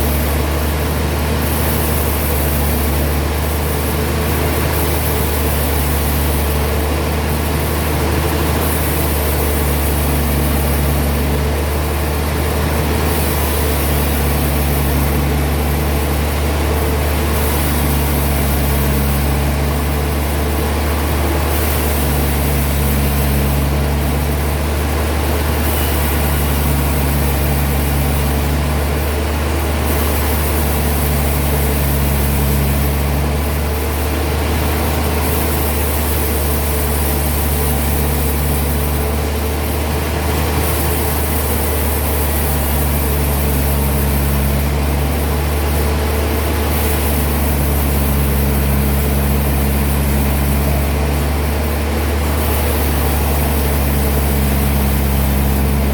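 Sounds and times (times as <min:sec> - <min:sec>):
sawmill machinery humming: 0:00.0 - 0:55.9.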